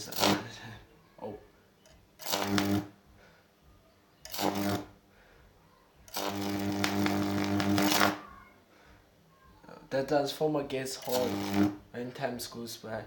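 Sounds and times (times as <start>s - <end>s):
electric arc buzzing harshly: 0.0s - 0.6s, 2.2s - 3.0s, 4.2s - 5.0s, 6.1s - 8.3s, 11.0s - 11.9s.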